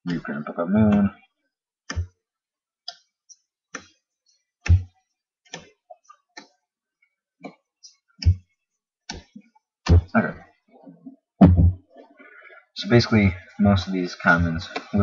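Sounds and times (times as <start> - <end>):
trading cards clicking and tapping: 1.9 - 2.2, 4.7 - 4.9, 9.1 - 10.1.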